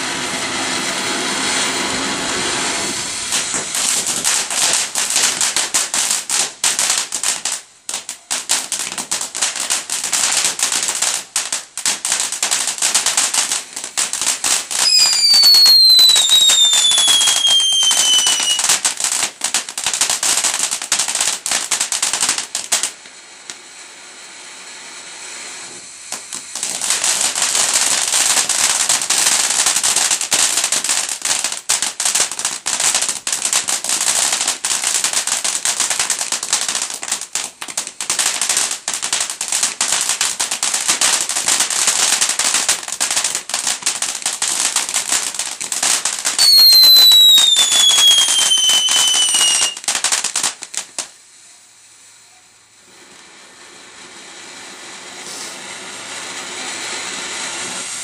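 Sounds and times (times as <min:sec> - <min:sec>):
fireworks crackling: 0:00.0 - 0:58.0.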